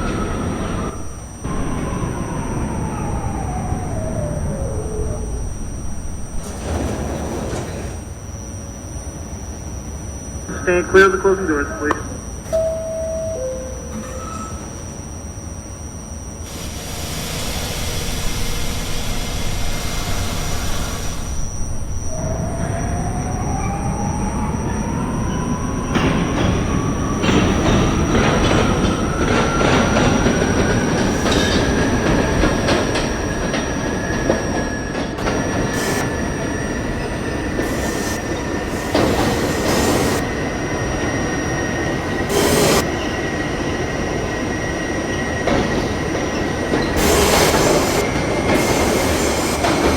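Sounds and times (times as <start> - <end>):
traction motors whining: 0.0 - 49.9
wheels clattering over rail joints: 5.9 - 8.3
air hiss: 16.5 - 21.5, 42.3 - 42.9.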